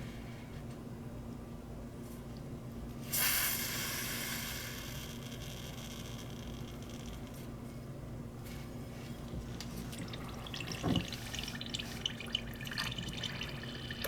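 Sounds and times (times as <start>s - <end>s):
gas hissing from lighter: 3.1s - 5.0s.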